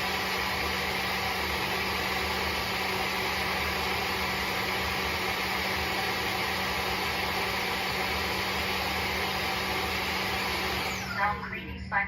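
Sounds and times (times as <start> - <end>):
vacuum mop motor drone: 0.0 - 11.4.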